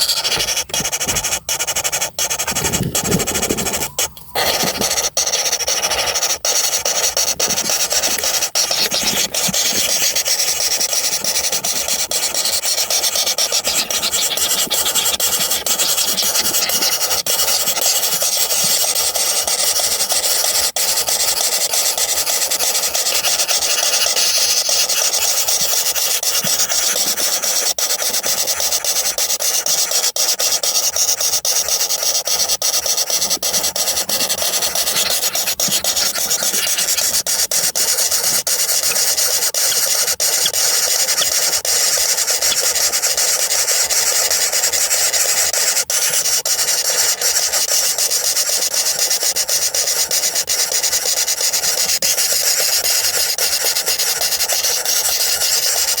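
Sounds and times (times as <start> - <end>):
nestlings begging buzzing chorus: 0.0 - 19.2, 30.4 - 47.6.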